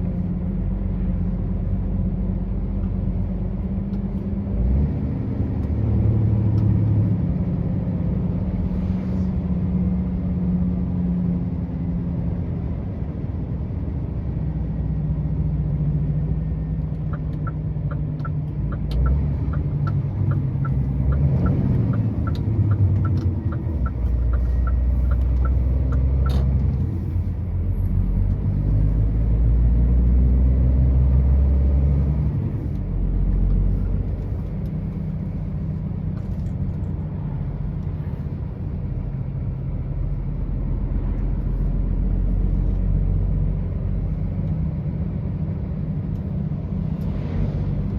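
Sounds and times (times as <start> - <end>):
truck engine droning: 0.0 - 47.9
regular ticking: 17.1 - 26.4.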